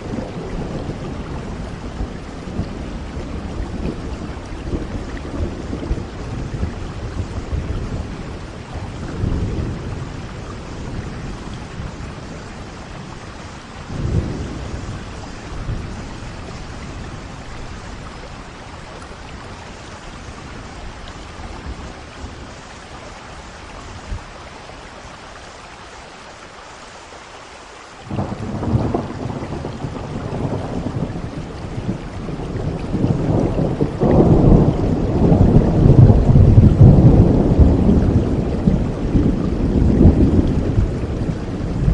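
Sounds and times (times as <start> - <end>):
thunder rolling: 0.0 - 18.6, 28.1 - 41.9
steady rain: 0.0 - 41.9
thunderclap: 28.1 - 41.9.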